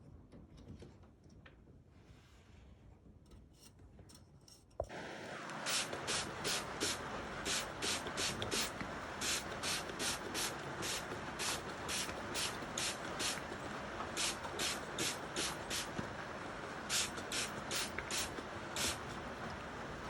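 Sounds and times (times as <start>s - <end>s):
water spraying on fan: 4.9s - 20.0s.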